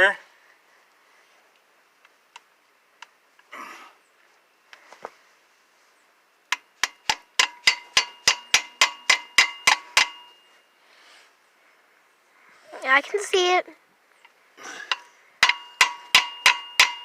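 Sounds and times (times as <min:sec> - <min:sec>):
hammer striking metal socket: 0:06.8 - 0:10.4, 0:14.9 - 0:17.0.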